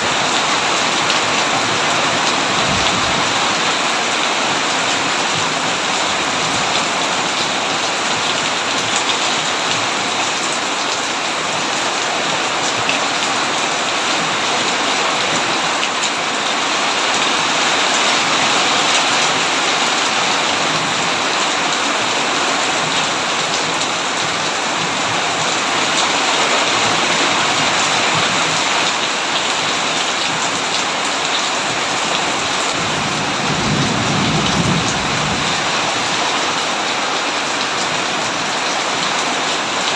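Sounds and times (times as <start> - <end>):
rain on a tin roof: 0.0 - 39.9
low rumble of thunder: 2.6 - 3.5, 32.8 - 35.8.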